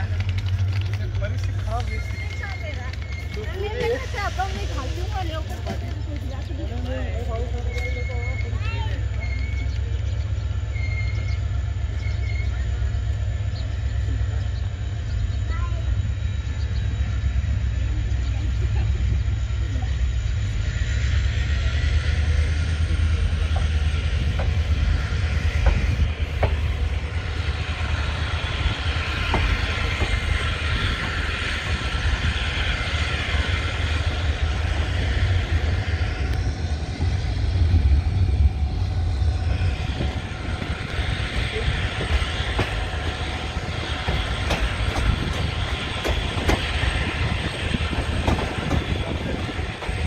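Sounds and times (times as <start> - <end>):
train coach rumbling on rails: 0.0 - 50.0
hiss: 23.2 - 37.6.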